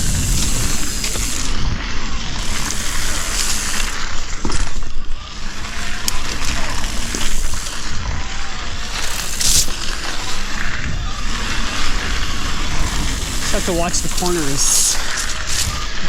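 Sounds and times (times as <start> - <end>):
bike clicks and rattles: 0.0 - 8.1.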